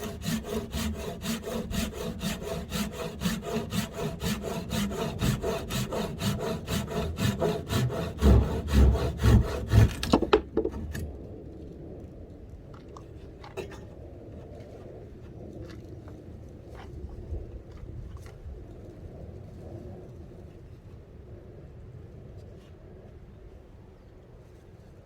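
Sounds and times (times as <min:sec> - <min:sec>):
hand saw cutting wood: 0:00.0 - 0:10.4.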